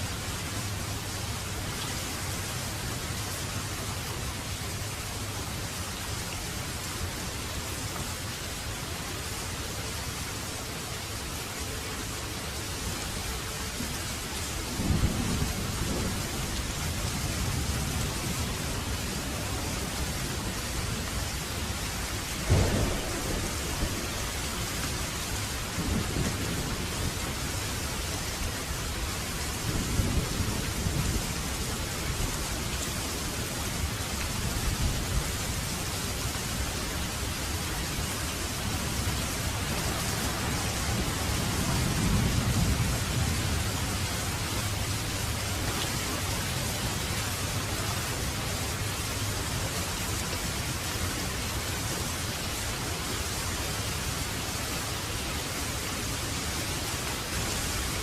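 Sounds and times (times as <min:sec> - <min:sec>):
steady rain falling: 0:00.0 - 0:58.0
thunder rumbling: 0:22.4 - 0:32.4, 0:38.9 - 0:45.4.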